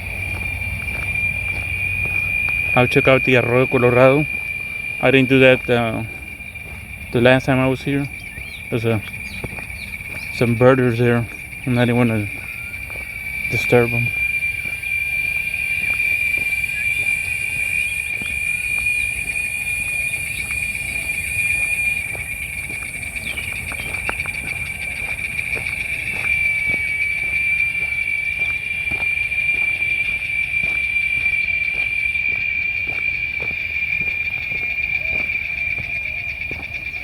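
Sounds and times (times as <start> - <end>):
cicadas droning: 0.0 - 37.0
footsteps on a trail: 0.0 - 37.0.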